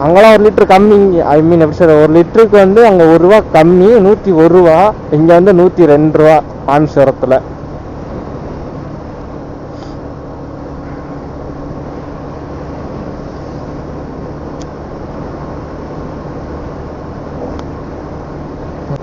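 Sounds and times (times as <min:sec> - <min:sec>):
motorcycle engine running: 0:07.4 - 0:19.0.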